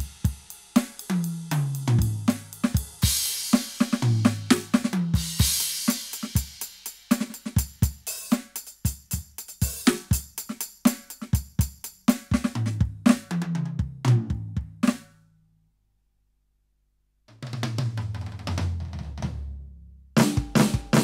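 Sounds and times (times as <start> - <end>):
electronic drum groove: 0.0 - 15.0, 20.2 - 21.0.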